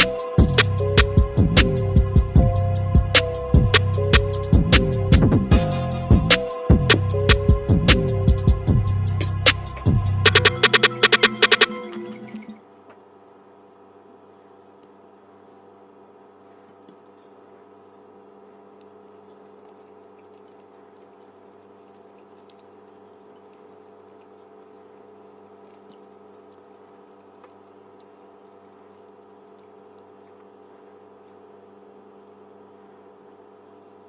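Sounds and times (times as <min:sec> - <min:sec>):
steady background hum: 0:00.0 - 0:34.0
person chewing: 0:18.7 - 0:30.7.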